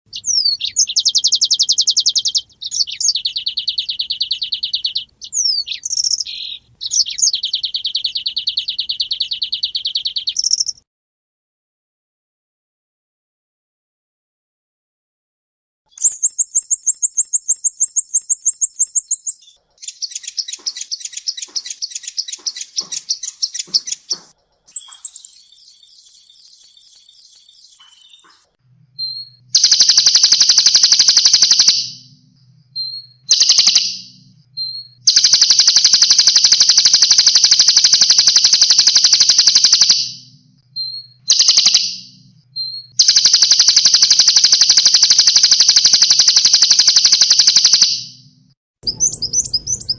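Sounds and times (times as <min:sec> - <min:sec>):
songbirds singing fast high notes: 0:00.1 - 0:10.8, 0:15.9 - 0:48.2, 0:48.8 - 0:49.9
faint low hum: 0:31.9 - 0:33.3.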